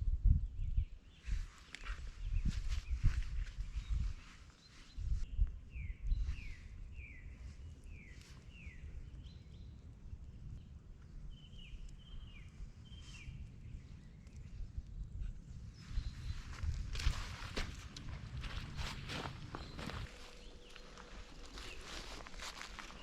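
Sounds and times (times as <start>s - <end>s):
steady low rumble: 9.8s - 23.0s.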